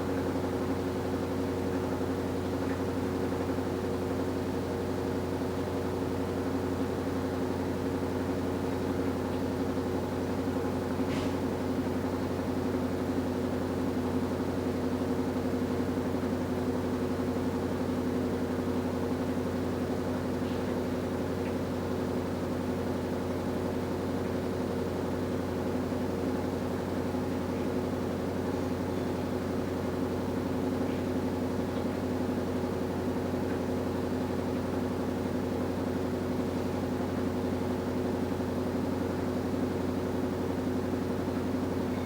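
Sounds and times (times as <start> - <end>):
washing machine motor hum: 21.1 - 42.0.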